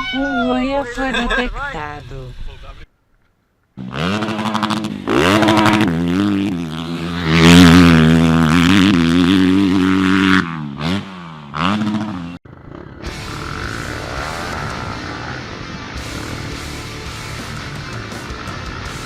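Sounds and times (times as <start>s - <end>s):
motorcycle engine revving: 3.8s - 19.0s.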